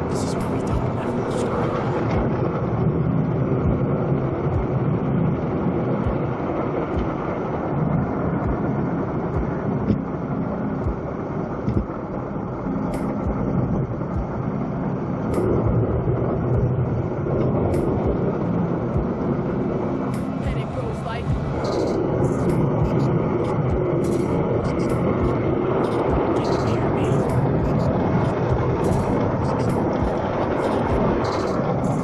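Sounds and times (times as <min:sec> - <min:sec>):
vehicle engine and road rumble: 0:00.0 - 0:32.0
sharp clicks: 0:21.6 - 0:31.6.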